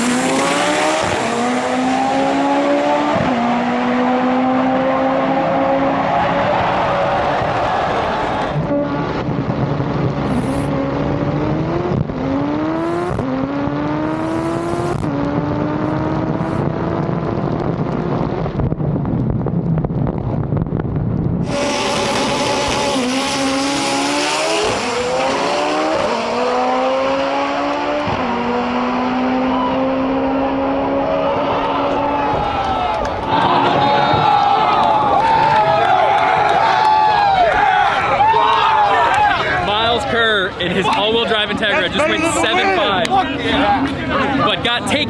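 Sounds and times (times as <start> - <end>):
drag racing car accelerating: 0.0 - 20.4, 21.3 - 34.1.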